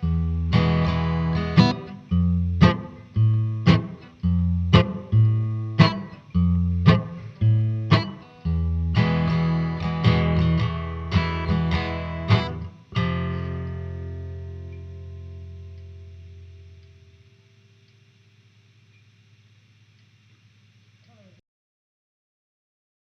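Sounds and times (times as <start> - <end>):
guitar strumming chords: 0.0 - 18.3.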